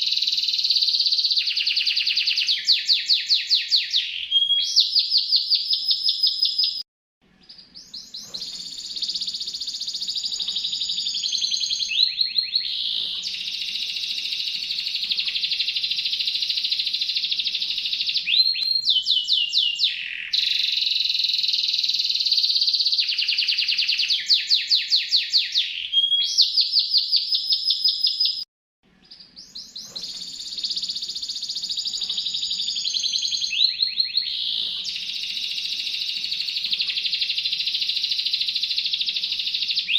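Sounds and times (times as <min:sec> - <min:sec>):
songbird singing rolling trills: 0:07.4 - 0:28.4.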